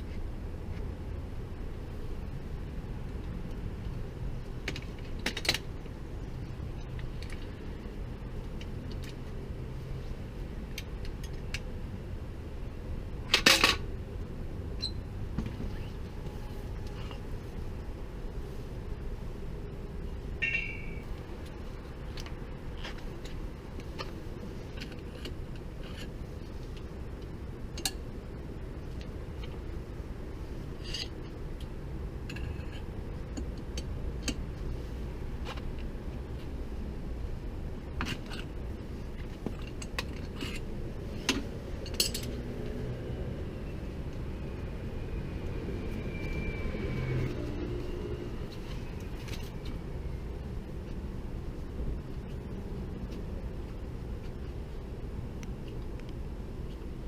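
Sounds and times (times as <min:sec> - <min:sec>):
brief squeak: 0:14.8 - 0:15.0
tools and parts clicking: 0:41.3 - 0:42.4.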